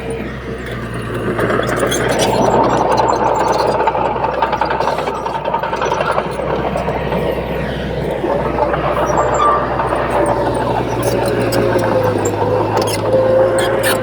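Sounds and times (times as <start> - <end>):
heavy machinery engine running: 0.0 - 14.0.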